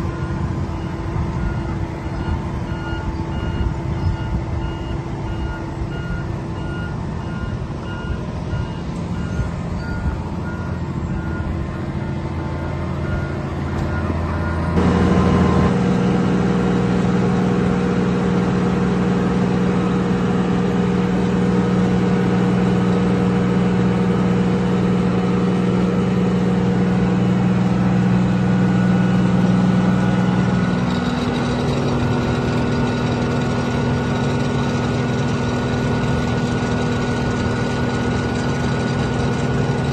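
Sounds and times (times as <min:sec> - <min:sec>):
diesel engine running: 0:00.0 - 0:39.9
reversing alarm beeping: 0:00.1 - 0:11.6, 0:12.4 - 0:16.2.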